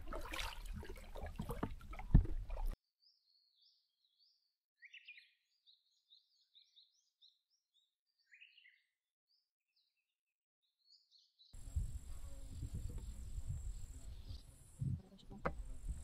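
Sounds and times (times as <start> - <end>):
songbird chirps and trills: 3.0 - 10.0.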